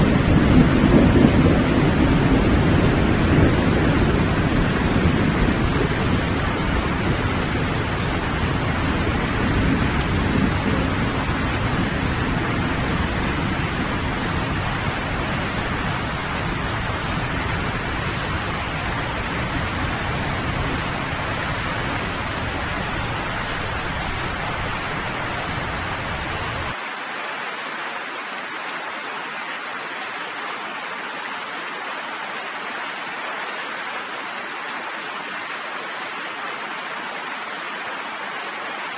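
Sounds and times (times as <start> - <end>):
low rumble of thunder: 0.0 - 26.8
steady rain falling: 0.0 - 38.9.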